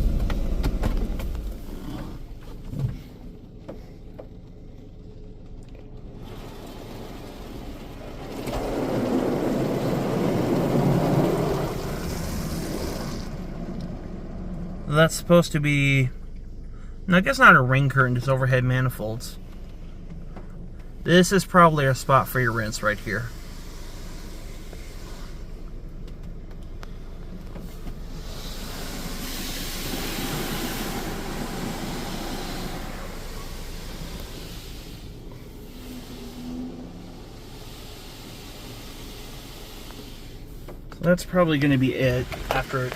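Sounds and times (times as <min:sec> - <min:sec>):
car wash water spray drumming: 0:00.0 - 0:16.6, 0:17.2 - 0:42.9
steady low hum: 0:09.1 - 0:42.9.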